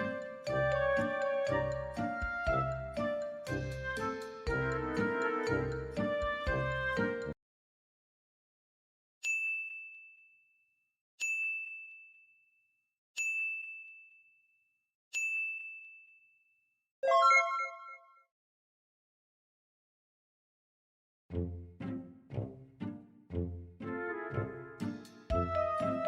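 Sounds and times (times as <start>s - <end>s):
bell-like dings: 9.2s - 10.6s, 11.2s - 12.5s, 13.2s - 14.5s, 15.1s - 16.5s.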